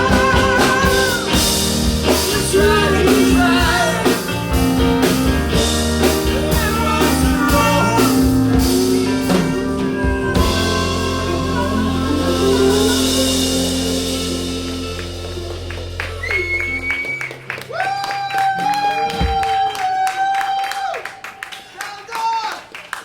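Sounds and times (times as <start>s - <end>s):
bending lead guitar melody: 0.0s - 17.7s
rock band playing: 0.0s - 20.4s.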